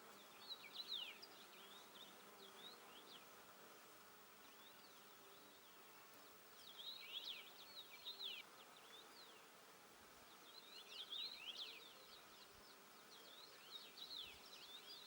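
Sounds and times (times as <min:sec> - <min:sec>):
songbird singing: 0:00.1 - 0:03.3, 0:06.5 - 0:09.5, 0:10.3 - 0:15.0.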